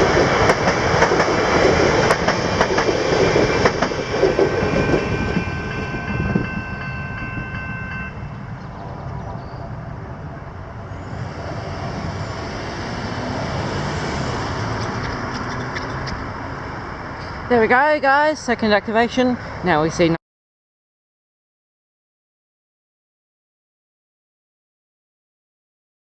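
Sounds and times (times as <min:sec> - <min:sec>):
train wheels clicking over rail joints: 0:00.0 - 0:06.6, 0:11.1 - 0:16.6
train rumble: 0:00.0 - 0:20.2.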